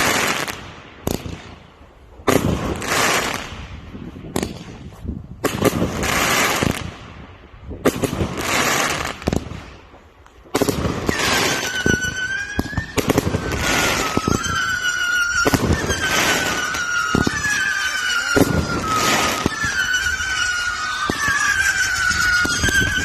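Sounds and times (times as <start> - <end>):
fireworks crackling and banging: 0.0 - 23.0
shrill firework whistle: 10.6 - 23.0.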